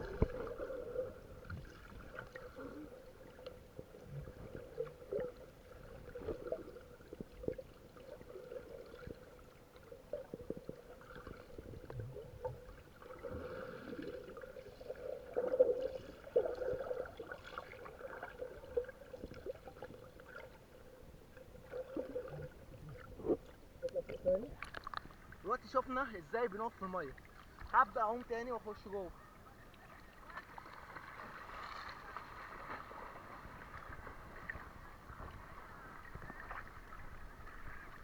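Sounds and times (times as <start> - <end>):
small water clicks: 0.0 - 0.7, 21.7 - 25.4.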